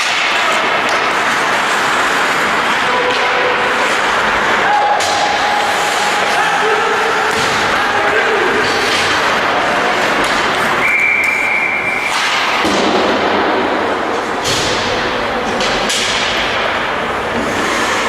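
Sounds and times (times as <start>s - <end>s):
referee's whistle: 10.8s - 12.2s.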